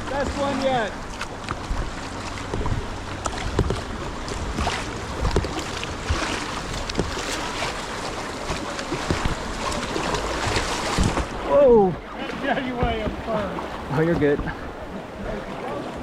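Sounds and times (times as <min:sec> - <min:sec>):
river water rushing: 0:00.0 - 0:16.0
water splashes and drips: 0:00.0 - 0:16.0.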